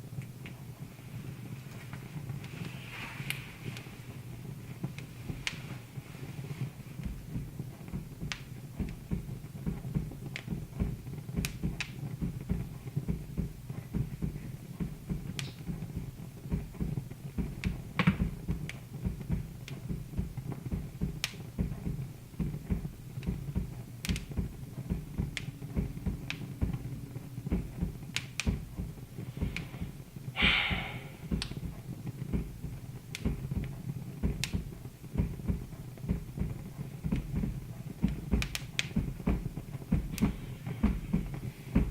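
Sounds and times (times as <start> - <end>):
low steady rumble: 0.0 - 41.9
wood fire crackling: 0.0 - 41.9
brief fire hiss: 30.4 - 31.3.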